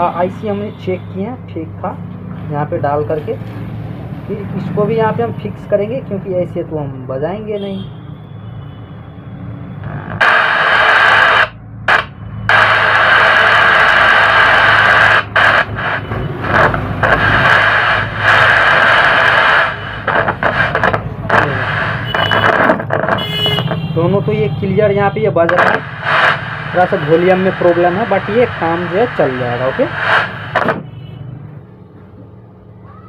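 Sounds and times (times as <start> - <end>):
crackles: 9.8 - 23.8, 25.4 - 30.9
radio static hiss: 9.8 - 24.4, 25.1 - 31.0.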